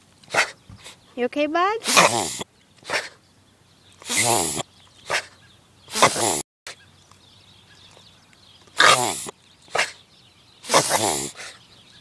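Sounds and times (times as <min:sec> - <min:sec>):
puppy reverse sneezing: 0:01.8 - 0:03.2, 0:04.0 - 0:05.3, 0:05.9 - 0:06.4, 0:08.8 - 0:10.0, 0:10.6 - 0:11.6.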